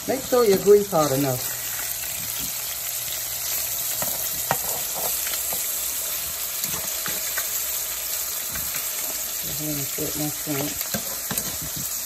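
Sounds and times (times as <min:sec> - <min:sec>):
fish frying in hot oil: 0:00.0 - 0:12.0
spatula scraping pan: 0:03.9 - 0:05.7, 0:10.3 - 0:12.0.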